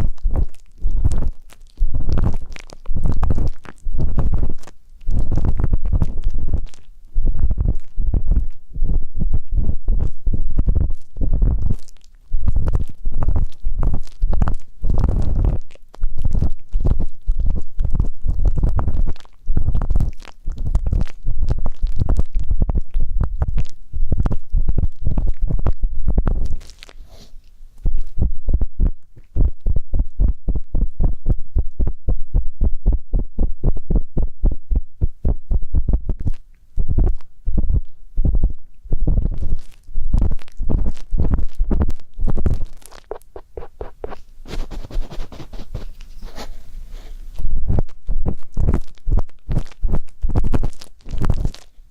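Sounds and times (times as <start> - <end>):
muffled low rumbling: 0.0 - 26.6, 27.7 - 51.5
ear pick scratching microphone: 0.0 - 51.9
ear pick scraping: 26.3 - 28.3, 38.2 - 51.7.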